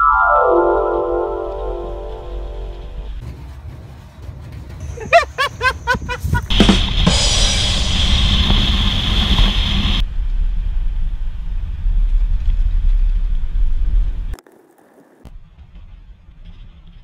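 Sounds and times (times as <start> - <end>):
vehicle drone: 0.0 - 4.8, 6.5 - 17.0
wind and road rumble: 2.0 - 17.0
high hiss: 6.5 - 10.0.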